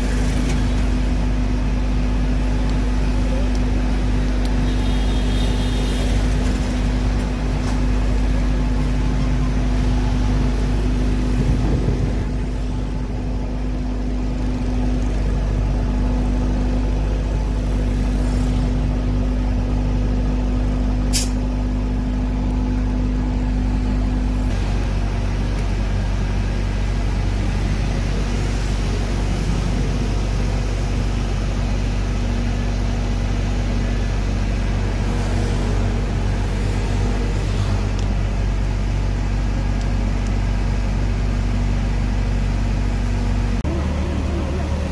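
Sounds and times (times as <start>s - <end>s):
fire truck engine droning: 0.0s - 44.9s.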